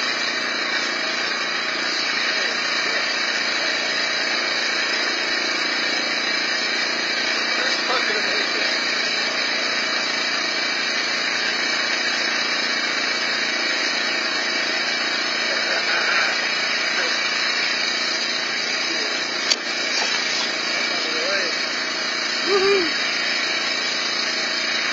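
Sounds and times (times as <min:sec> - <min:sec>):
snowblower engine running: 0:00.0 - 0:24.9
sharp click: 0:19.4 - 0:20.6.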